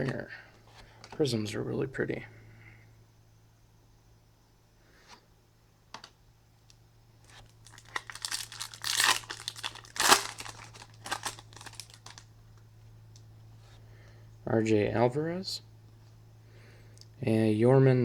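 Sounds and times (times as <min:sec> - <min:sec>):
foil wrapper tearing and crinkling: 0:07.3 - 0:12.3.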